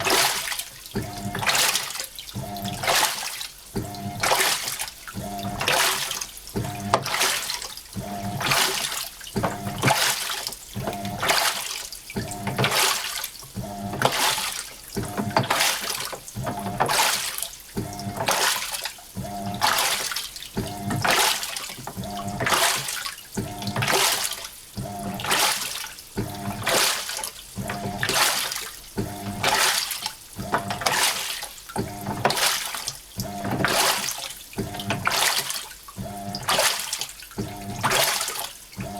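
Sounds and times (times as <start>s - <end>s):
washing machine water sloshing: 0.0s - 38.9s.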